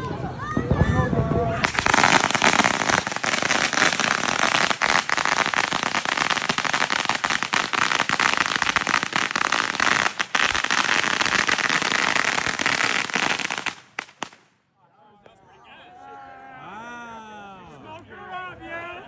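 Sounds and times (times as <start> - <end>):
fireworks crackling: 0.0 - 14.6.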